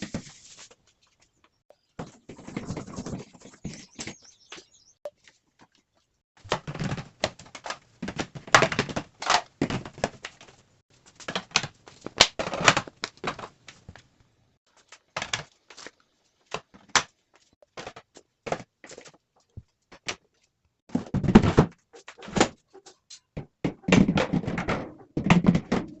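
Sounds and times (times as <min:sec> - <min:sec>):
objects scraping: 0:02.0 - 0:04.2
objects knocking and clunking: 0:06.4 - 0:14.2, 0:14.8 - 0:26.0.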